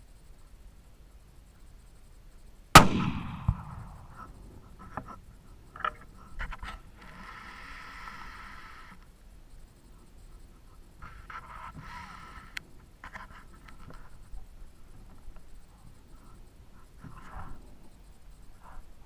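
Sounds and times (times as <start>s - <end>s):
rifle shot with ringing tail: 2.7s - 4.3s
faint bullet impact crack: 2.8s - 4.2s.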